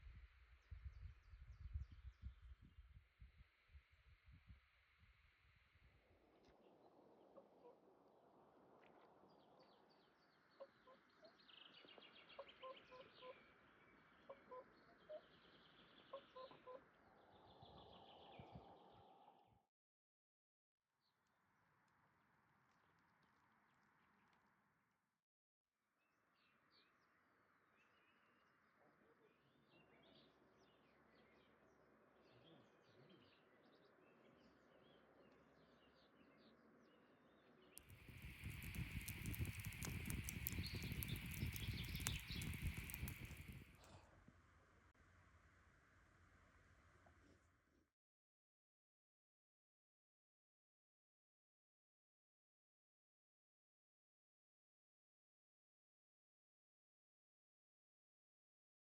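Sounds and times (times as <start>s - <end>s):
songbirds chirping and trilling: 9.3s - 19.2s, 32.2s - 43.6s
low clucking bird notes: 38.0s - 43.6s.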